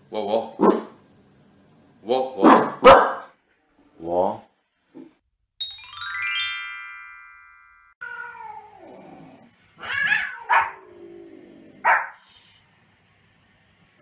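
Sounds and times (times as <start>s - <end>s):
dog yapping barks: 0.6s - 1.0s, 2.4s - 3.3s, 9.9s - 10.8s, 11.8s - 12.2s
chime: 5.6s - 8.0s
dog crying: 9.8s - 10.9s.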